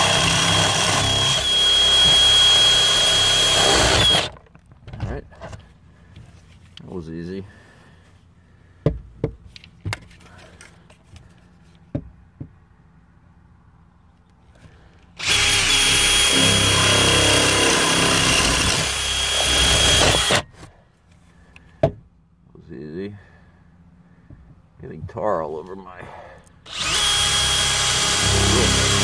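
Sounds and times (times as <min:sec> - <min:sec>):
power drill whine: 0:00.0 - 0:04.4, 0:15.2 - 0:20.6, 0:26.7 - 0:29.0.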